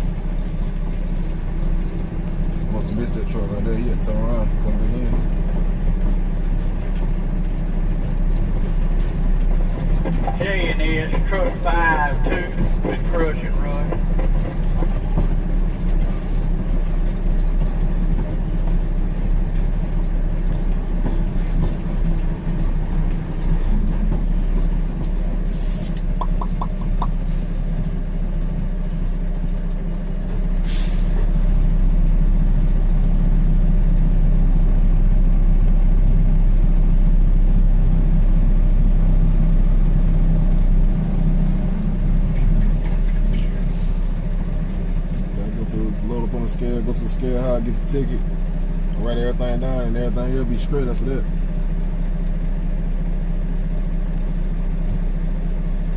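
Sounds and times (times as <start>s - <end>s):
diesel truck engine running: 0.0s - 55.9s
air brake hisses: 25.5s - 26.0s, 30.6s - 31.2s.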